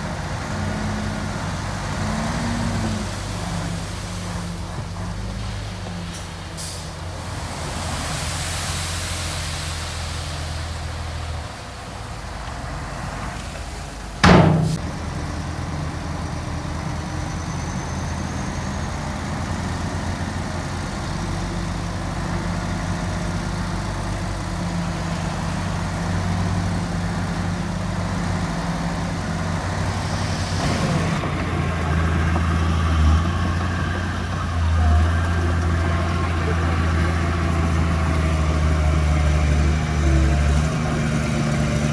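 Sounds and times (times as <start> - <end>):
diesel construction machinery running: 0.0 - 41.9
sharp bang: 14.2 - 15.2.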